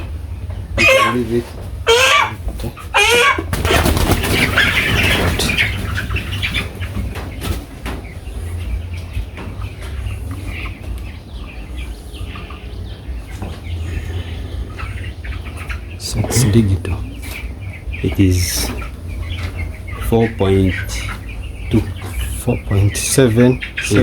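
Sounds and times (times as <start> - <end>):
cockerel squawking: 0.7 - 5.7
wings flapping hard: 3.3 - 7.7.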